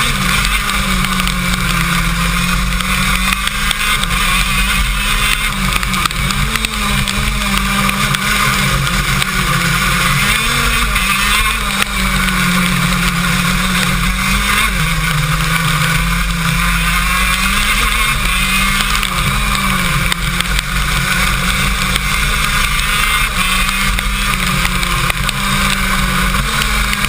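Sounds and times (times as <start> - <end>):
kart engine running hard: 0.0 - 27.0.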